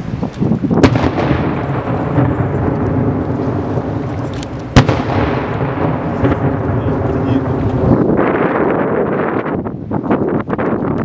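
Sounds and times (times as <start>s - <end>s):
low rumble of booms: 0.6s - 9.8s
firework shells bursting: 0.8s - 8.8s.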